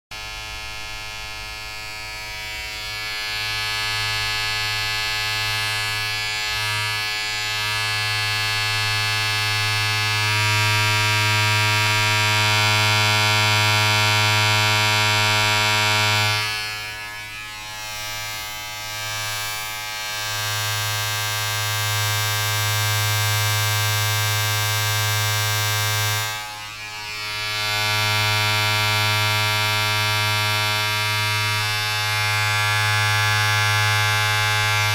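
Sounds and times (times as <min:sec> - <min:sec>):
electric motor buzz: 0:00.2 - 0:34.9.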